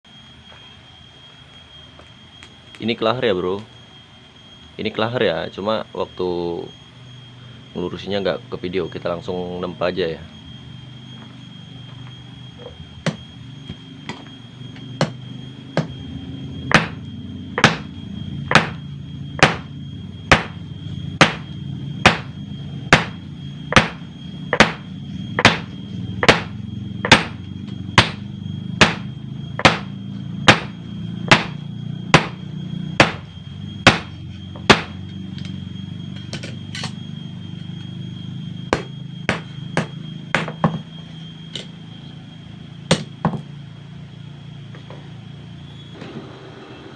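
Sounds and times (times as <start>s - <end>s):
steady low hum: 0.0s - 46.9s
hammer striking steel on anvil: 17.6s - 17.9s, 18.5s - 18.8s, 20.3s - 20.6s, 21.2s - 21.5s, 22.1s - 22.3s, 23.8s - 24.0s, 24.6s - 24.8s, 25.4s - 27.4s, 28.0s - 28.2s, 28.8s - 29.9s, 30.5s - 30.7s, 31.3s - 31.6s, 32.2s - 32.4s, 33.0s - 33.2s, 33.9s - 34.1s, 34.7s - 35.0s, 38.7s - 40.6s.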